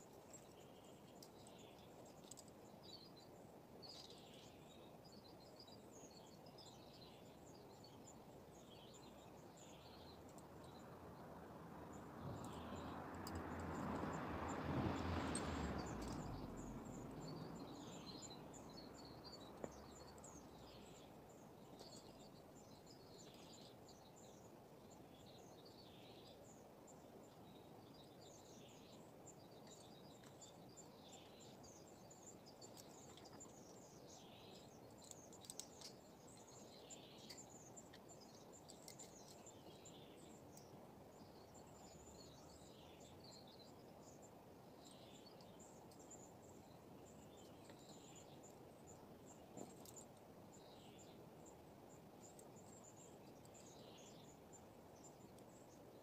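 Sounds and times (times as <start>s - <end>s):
low steady hiss: 0.0s - 56.0s
small birds chirping: 0.0s - 56.0s.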